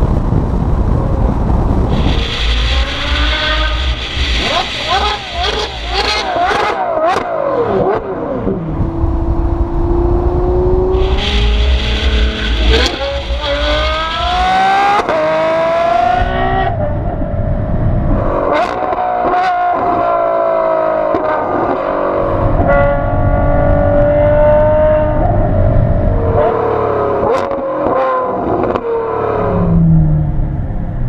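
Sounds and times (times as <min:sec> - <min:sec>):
car engine accelerating hard: 0:00.0 - 0:31.0
sharp exhaust cracks: 0:00.3 - 0:07.3, 0:10.8 - 0:15.3.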